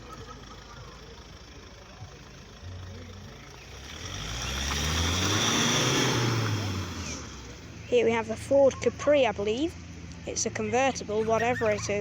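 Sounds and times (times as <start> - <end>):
car driving past: 0.0 - 7.8.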